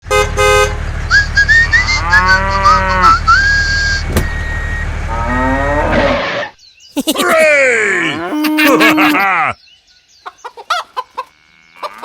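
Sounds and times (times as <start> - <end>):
low engine rumble: 0.2 - 6.2
high whistling chirps: 1.1 - 5.0
low animal calls like mooing: 1.4 - 3.7, 5.1 - 6.2, 7.8 - 9.6.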